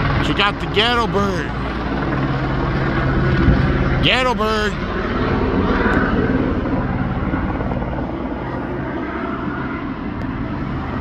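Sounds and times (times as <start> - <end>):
helicopter rotor blades chopping: 0.0 - 11.0.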